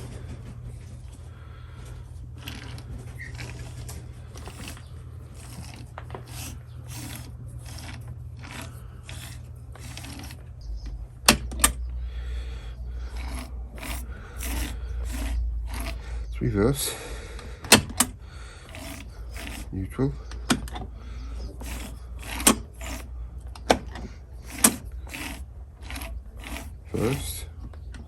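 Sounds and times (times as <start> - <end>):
steady low hum: 0.0 - 28.0
tools clicking and scraping metal: 2.4 - 10.6, 13.0 - 16.2, 17.7 - 28.0.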